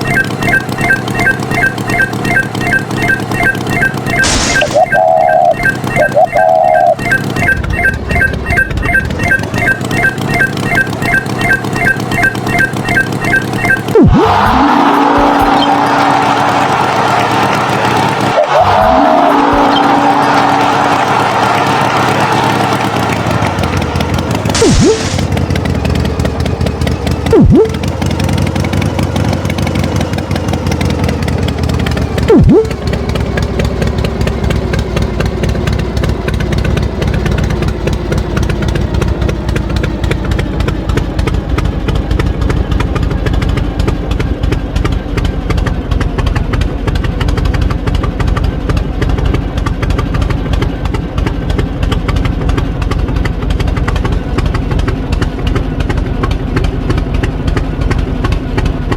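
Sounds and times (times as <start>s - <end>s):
tractor engine idling: 15.0s - 58.9s.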